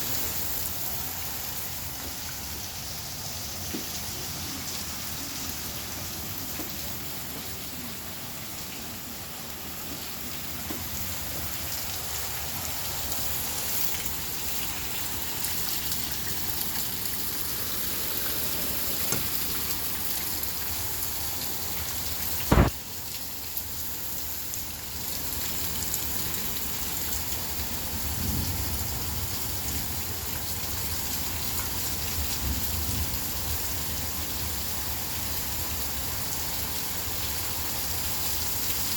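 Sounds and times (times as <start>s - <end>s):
rain hissing: 0.0s - 38.9s
sharp loud knock: 22.5s - 22.7s.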